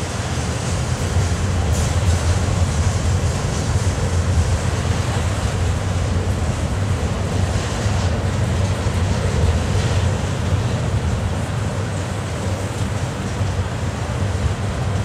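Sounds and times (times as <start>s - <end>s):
freight train cars rolling: 0.0s - 15.0s.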